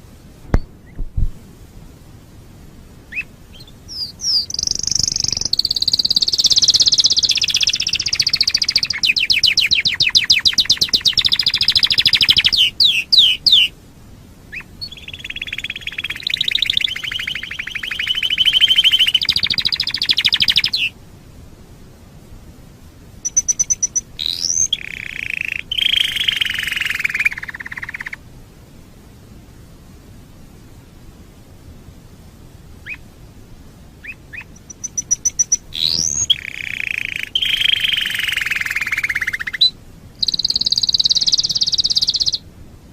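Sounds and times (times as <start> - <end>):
canary singing trills and warbles: 3.1 - 13.8, 14.5 - 21.0, 23.2 - 28.2, 32.8 - 33.1, 34.0 - 42.4.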